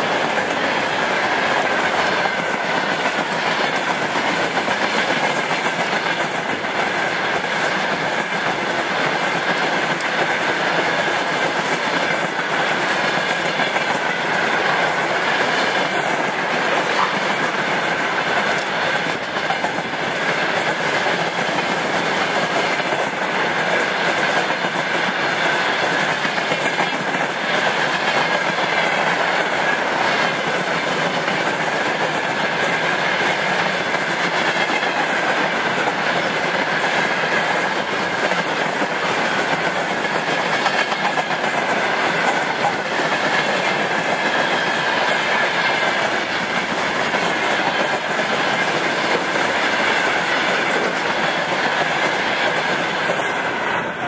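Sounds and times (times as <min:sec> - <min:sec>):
clickety-clack over rail joints: 0:00.0 - 0:54.0
freight train wheels rumbling: 0:00.0 - 0:54.0.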